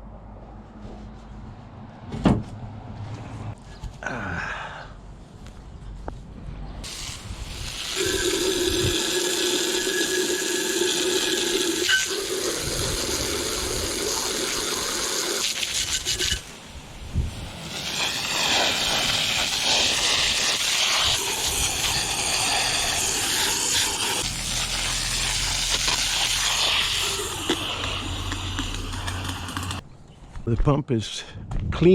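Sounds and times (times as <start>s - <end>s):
garden hose spraying water: 6.8s - 29.8s.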